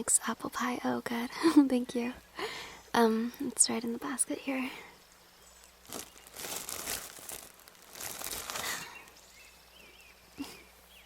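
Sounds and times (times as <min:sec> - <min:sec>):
wrapping crinkling and rustling: 0:05.8 - 0:09.2.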